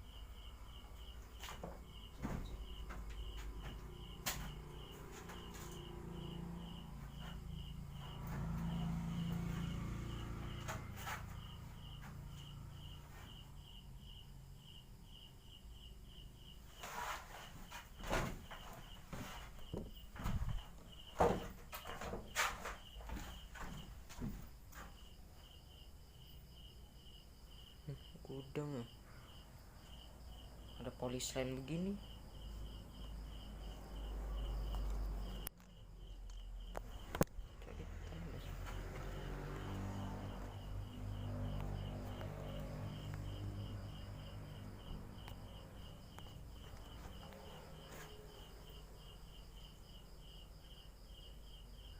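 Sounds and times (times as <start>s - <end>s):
insect chirping: 0.0s - 51.9s
rustling thumps: 1.3s - 5.8s, 16.8s - 25.0s.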